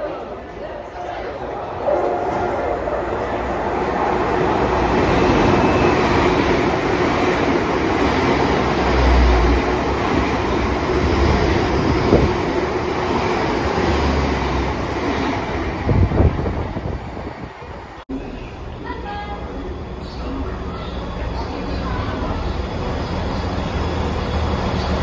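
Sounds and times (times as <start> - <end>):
train wheels rumbling on rail: 1.8 - 18.0.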